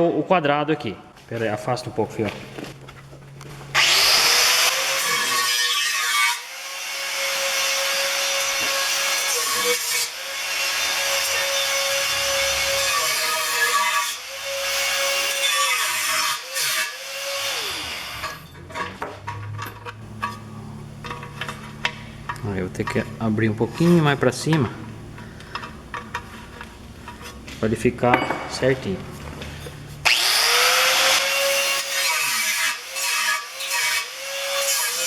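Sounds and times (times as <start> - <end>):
angle grinder cutting metal: 3.7 - 18.6, 30.0 - 35.0.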